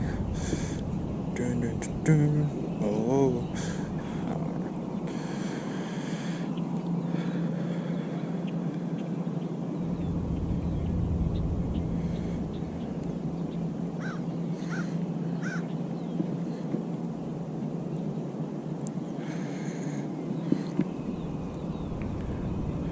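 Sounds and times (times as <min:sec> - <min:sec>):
harsh bird calls: 0:00.0 - 0:08.3, 0:09.0 - 0:16.7
low rumble: 0:00.0 - 0:08.9, 0:09.5 - 0:16.0, 0:20.5 - 0:22.9
birds chirping: 0:00.0 - 0:22.9
steady low hum: 0:00.0 - 0:22.9.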